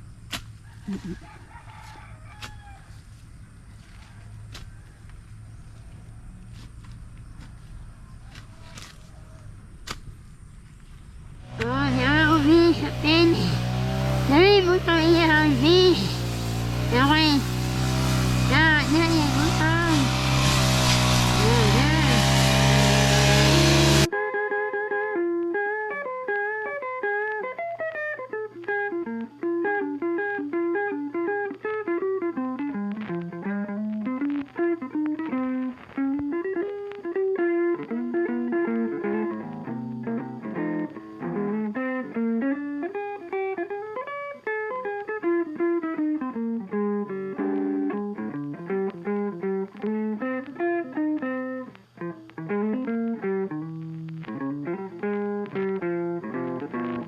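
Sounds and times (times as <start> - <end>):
steady bass line: 2.9 - 24.1
plucked guitar tune: 9.5 - 57.0.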